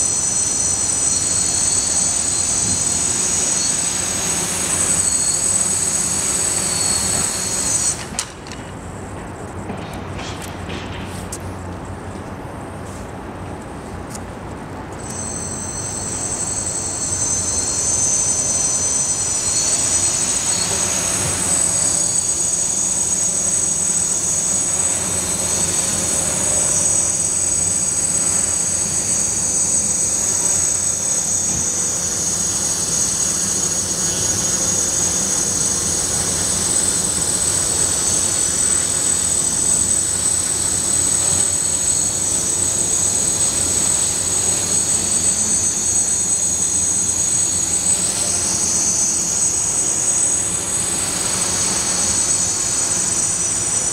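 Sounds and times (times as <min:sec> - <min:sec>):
drone motors whining: 0:00.0 - 0:10.6, 0:14.9 - 0:53.9
propellers rushing: 0:15.1 - 0:53.9.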